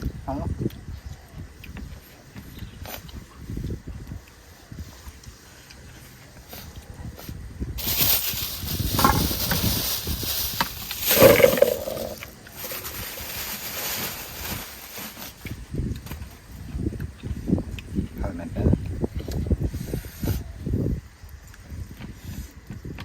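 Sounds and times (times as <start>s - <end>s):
crunching and chewing food: 0.6s - 20.0s, 20.6s - 23.0s.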